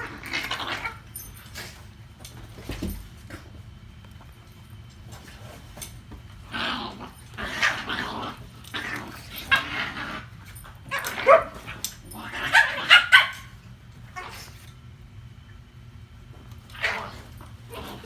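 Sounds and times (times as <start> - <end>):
dog barking and grumbling: 0.0 - 1.2, 6.4 - 13.5, 16.7 - 18.0.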